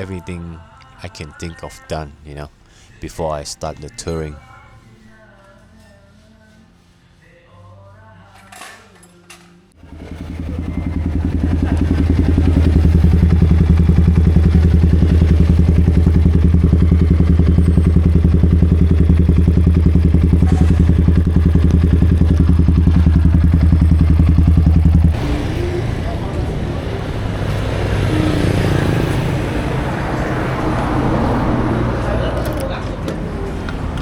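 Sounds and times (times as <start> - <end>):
motorcycle engine running: 9.8 - 32.4.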